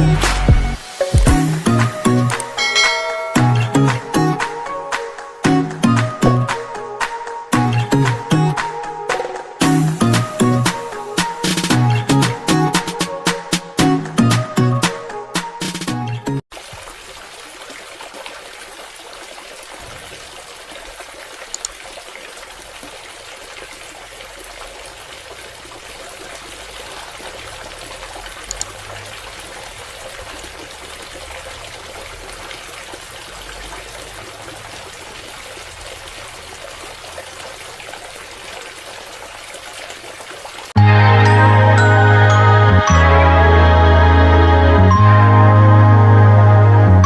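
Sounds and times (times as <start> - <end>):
water trickling from pump outlet: 0.9 - 4.0, 16.5 - 40.8
faint clicks: 21.5 - 21.8, 28.5 - 28.8.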